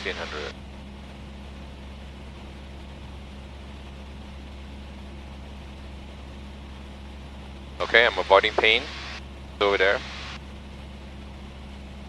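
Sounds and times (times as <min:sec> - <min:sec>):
propeller plane engine drone: 0:00.0 - 0:12.0
cabin noise hiss: 0:07.8 - 0:10.5.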